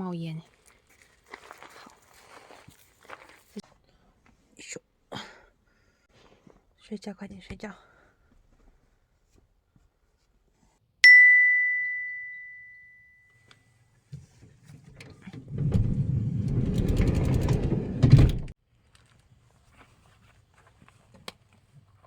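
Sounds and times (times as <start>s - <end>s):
bright bell-like ding: 11.0s - 13.4s
rumbling rustling noise with clicks: 14.2s - 19.2s.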